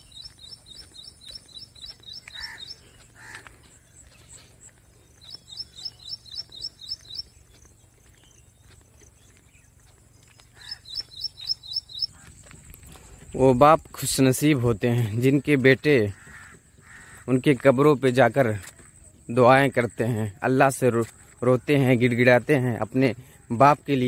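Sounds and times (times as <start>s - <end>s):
bird chirping rapidly: 0.0s - 3.2s, 5.0s - 12.3s
lower bird calls: 0.0s - 13.2s.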